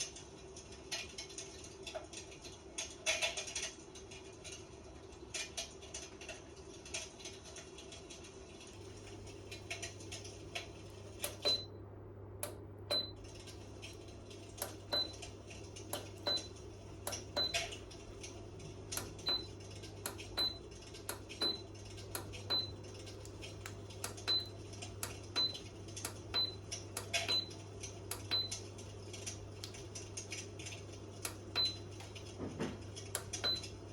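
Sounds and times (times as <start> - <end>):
heater humming: 8.6 - 33.9.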